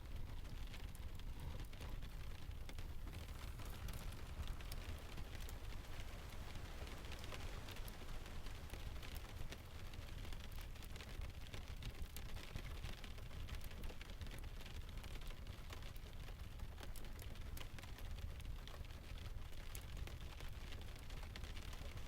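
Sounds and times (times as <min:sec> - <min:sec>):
wood fire crackling: 0:00.0 - 0:22.0
rain hiss: 0:02.9 - 0:11.6.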